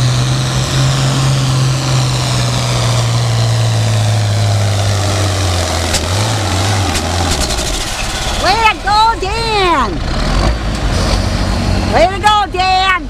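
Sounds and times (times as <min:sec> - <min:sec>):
tractor engine running under load: 0:00.0 - 0:12.0.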